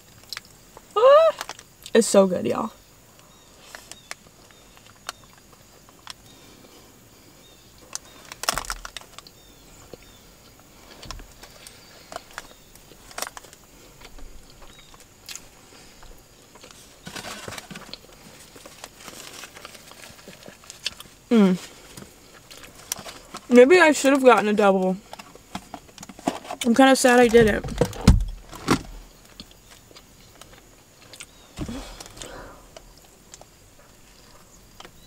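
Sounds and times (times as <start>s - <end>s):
soft rustling: 10.7s - 23.7s
mouth clicks and chewing: 29.3s - 35.0s.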